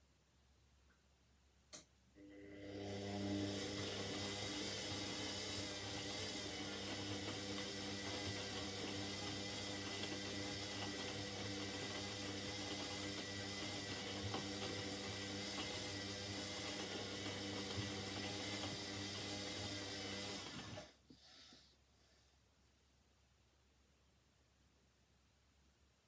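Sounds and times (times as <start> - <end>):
washing machine hum: 2.2 - 21.0.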